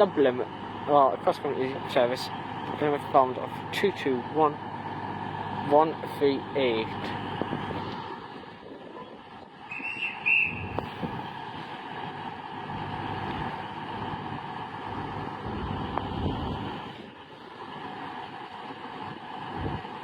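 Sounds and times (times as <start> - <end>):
train engine hum with whine: 0.0 - 20.0.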